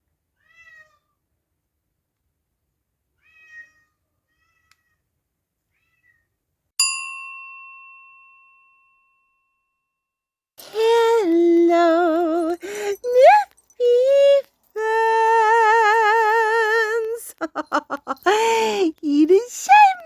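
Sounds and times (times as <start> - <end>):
cat meowing: 0.4 - 1.2, 3.2 - 5.0, 5.7 - 6.2.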